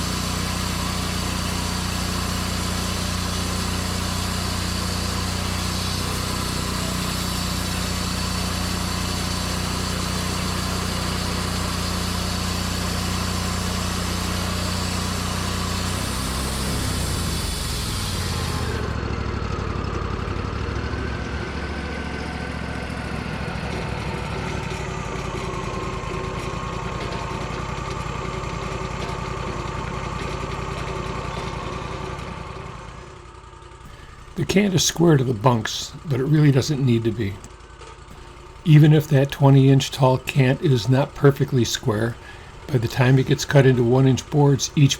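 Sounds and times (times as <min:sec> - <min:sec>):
sawmill petrol engine running: 0:00.0 - 0:44.9.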